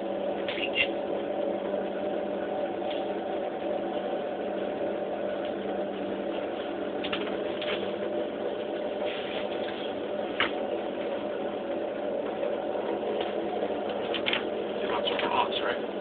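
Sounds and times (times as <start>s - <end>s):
gondola mechanical hum: 0.0s - 16.0s.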